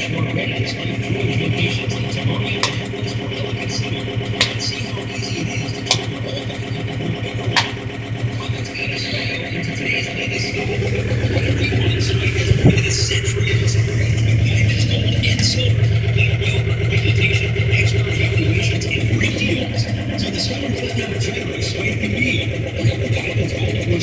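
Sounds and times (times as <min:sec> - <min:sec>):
tractor diesel engine running: 0:00.0 - 0:24.0
sharp clicks: 0:02.5 - 0:06.8, 0:07.6 - 0:09.2.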